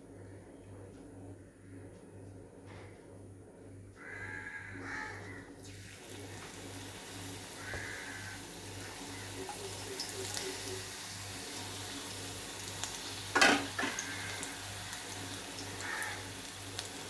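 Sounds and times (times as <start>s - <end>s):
food sizzling in hot oil: 5.6s - 17.0s.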